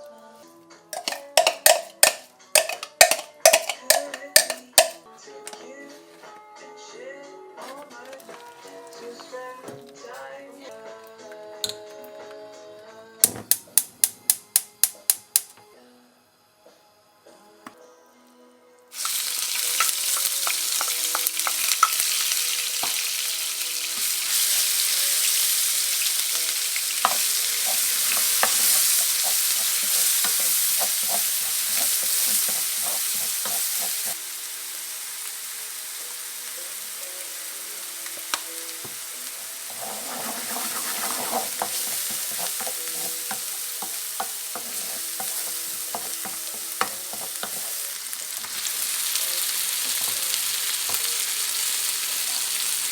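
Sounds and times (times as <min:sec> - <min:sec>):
food sizzling in oil: 0:01.0 - 0:05.0, 0:18.9 - 0:52.9
utensil scraping and tapping pan: 0:01.0 - 0:05.0, 0:39.7 - 0:47.7.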